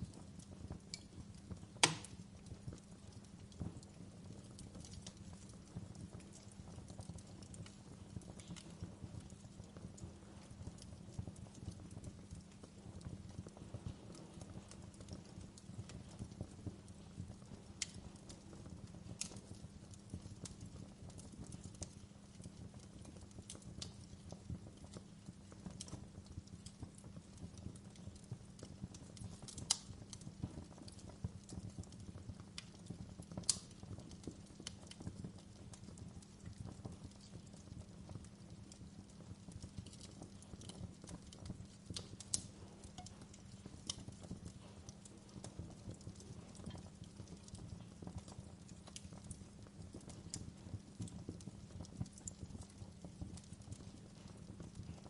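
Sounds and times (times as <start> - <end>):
wood fire crackling: 0.0 - 55.0
sharp fire pops: 0.8 - 2.6, 32.6 - 35.2, 39.4 - 51.4.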